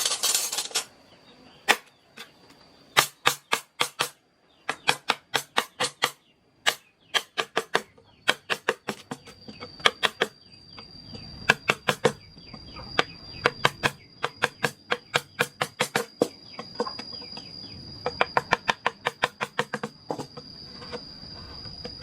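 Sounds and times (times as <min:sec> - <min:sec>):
insect buzzing: 0:02.9 - 0:22.0
mallet striking chisel into wood: 0:13.4 - 0:17.0.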